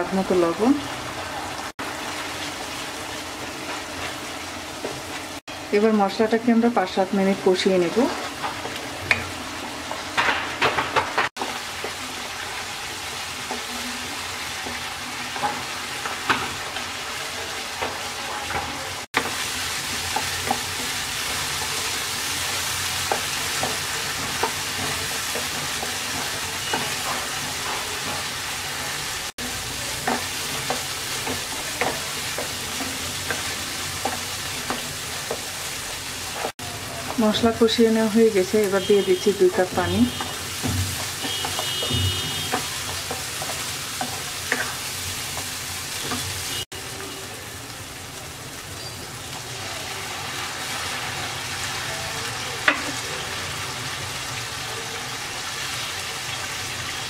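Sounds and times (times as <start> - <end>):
paste sizzling in oil: 11.4 - 57.0.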